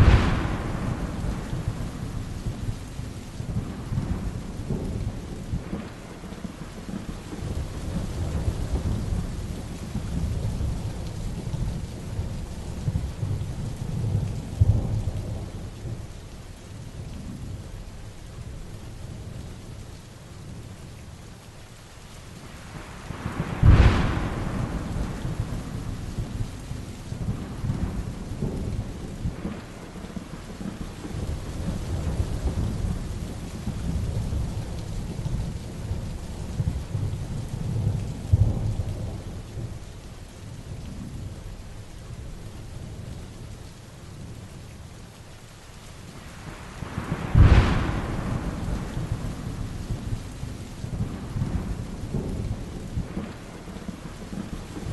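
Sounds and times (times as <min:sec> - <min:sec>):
sharp thunderclaps: 0:00.0 - 0:02.8, 0:23.1 - 0:26.6, 0:46.5 - 0:54.9
rolling thunder: 0:00.0 - 0:16.1, 0:22.7 - 0:39.8, 0:46.3 - 0:54.9
heavy rain: 0:00.0 - 0:54.9.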